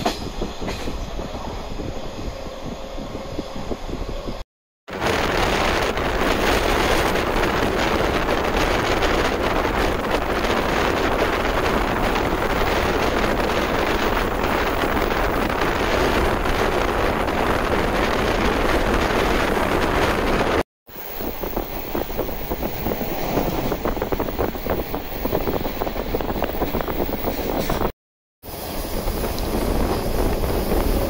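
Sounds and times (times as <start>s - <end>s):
electric train running noise: 28.5s - 31.0s.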